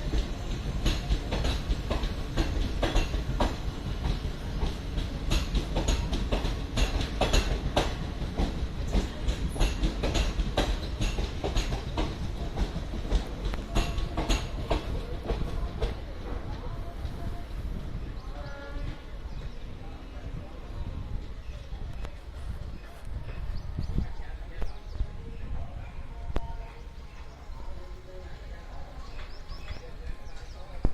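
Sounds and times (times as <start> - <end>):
train wheels clattering on rails: 0.0 - 19.6, 28.8 - 30.9
low train rumble: 0.0 - 30.9.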